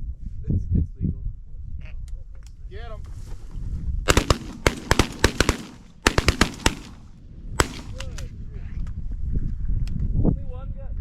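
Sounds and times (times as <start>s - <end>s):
shotgun blasts: 4.1s - 8.3s.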